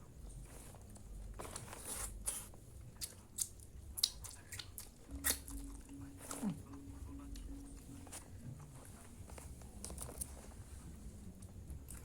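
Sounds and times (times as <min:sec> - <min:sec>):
steady low hum: 0:00.0 - 0:12.0
chewing: 0:01.4 - 0:06.8.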